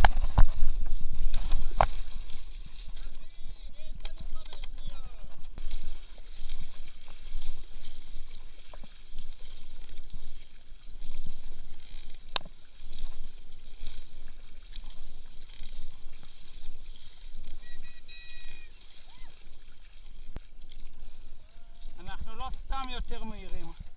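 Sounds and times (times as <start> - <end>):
kayak paddle strokes in water: 0.0 - 23.9
wind rumbling on microphone: 0.0 - 23.9.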